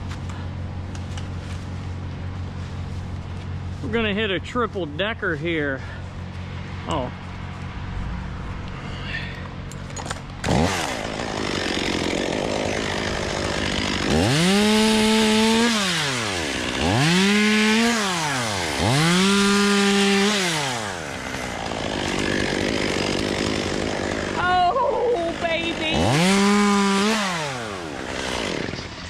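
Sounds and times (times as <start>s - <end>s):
chainsaw revving: 10.4s - 29.0s.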